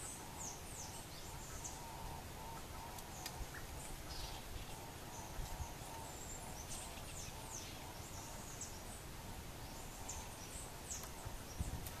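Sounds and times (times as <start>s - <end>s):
outdoor background hiss: 0.0s - 12.0s
small songbirds chirping: 0.0s - 12.0s.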